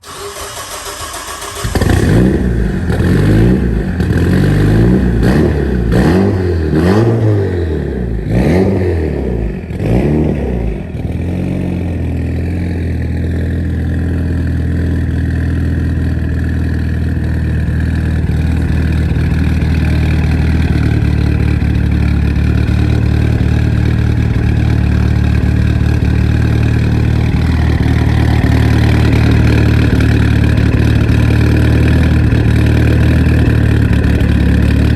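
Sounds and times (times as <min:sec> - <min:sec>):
car engine revving: 0:00.0 - 0:34.9
car engine idling with a lope: 0:10.8 - 0:34.9.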